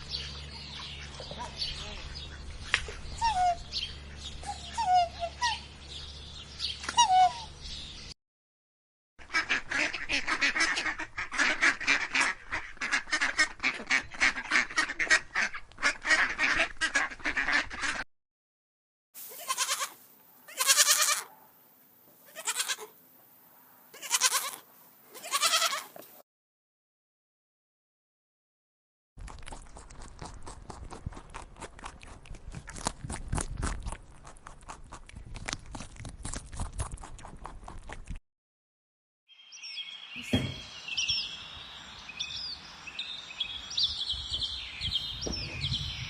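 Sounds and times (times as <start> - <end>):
small birds chirping: 0.0 - 8.2, 39.3 - 46.0.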